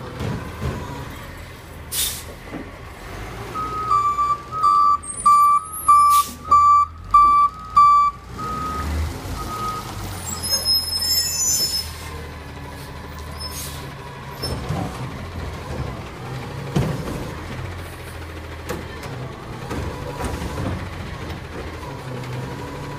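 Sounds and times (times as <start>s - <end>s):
truck engine hum: 0.0s - 22.9s
air brake hiss: 1.9s - 2.4s
truck reversing beeper: 3.4s - 12.0s
high squeal: 10.2s - 12.0s.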